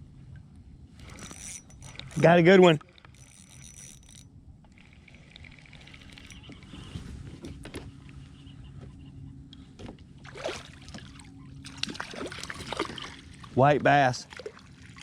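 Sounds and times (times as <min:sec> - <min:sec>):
low steady hum: 0:00.0 - 0:15.0
fishing reel clicks: 0:01.0 - 0:06.6.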